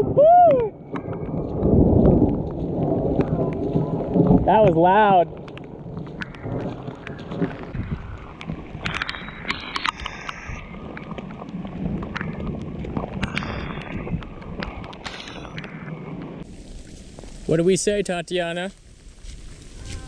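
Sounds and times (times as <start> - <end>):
wind on microphone: 0.0 - 17.7, 18.7 - 20.0
footsteps splashing through water: 0.9 - 4.5, 5.2 - 13.9, 16.4 - 17.8, 18.7 - 20.0.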